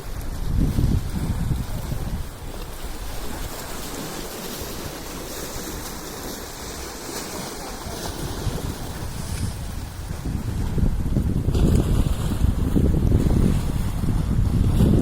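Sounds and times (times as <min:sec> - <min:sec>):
water rushing: 0:00.0 - 0:15.0
wind rushing: 0:08.2 - 0:15.0.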